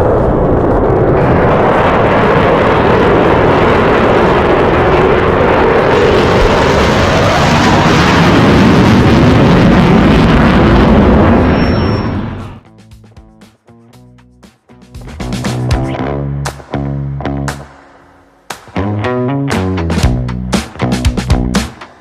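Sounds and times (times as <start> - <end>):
jet fighter flying by: 1.2 - 12.6.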